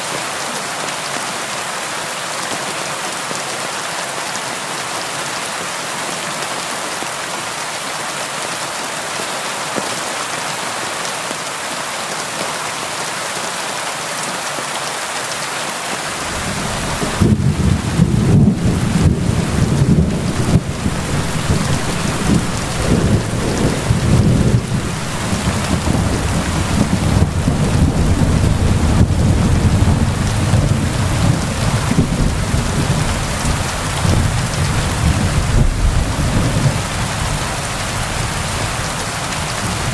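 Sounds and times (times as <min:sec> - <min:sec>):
rain against a window: 0:16.0 - 0:39.9
deep rolling thunder: 0:16.1 - 0:39.9.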